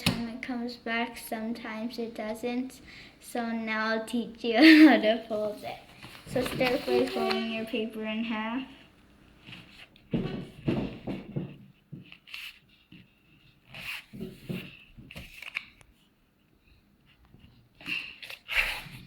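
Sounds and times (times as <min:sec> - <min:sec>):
paper being folded: 0:05.5 - 0:07.9.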